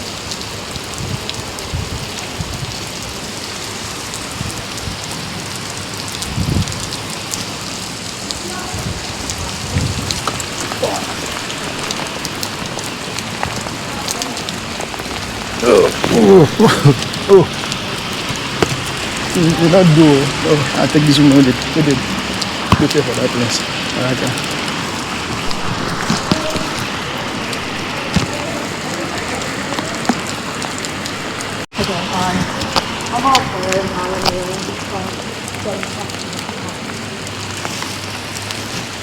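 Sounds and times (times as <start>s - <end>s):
close raindrop ticks: 0.0s - 39.0s
heavy rain falling: 0.0s - 39.0s
sharp taps of drips: 17.0s - 19.4s, 22.4s - 23.6s.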